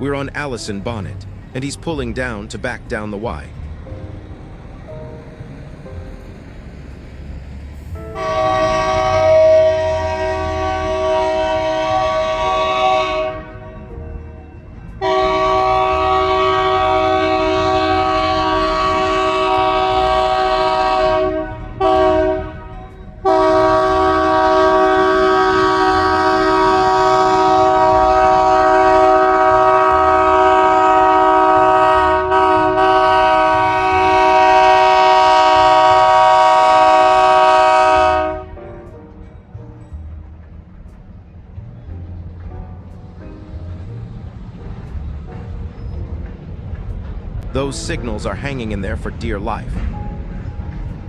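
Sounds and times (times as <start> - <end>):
locomotive air horn blasts: 8.0 - 13.9, 15.0 - 38.6.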